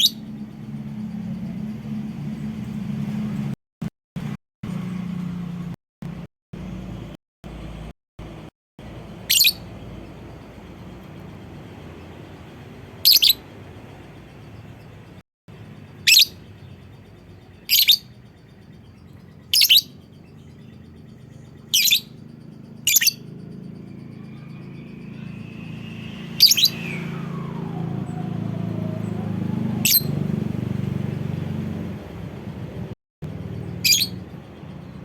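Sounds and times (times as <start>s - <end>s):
bird shrill calls: 0.0s - 0.2s, 9.2s - 9.7s, 13.0s - 13.4s, 15.9s - 16.8s, 17.4s - 23.3s, 24.0s - 30.2s, 33.7s - 34.4s
low hum: 8.8s - 35.0s.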